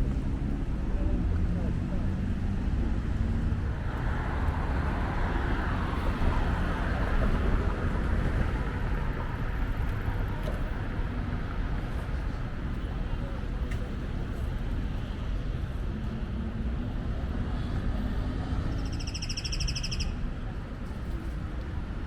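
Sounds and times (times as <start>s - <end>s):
rumble of passing cars: 0.0s - 22.0s.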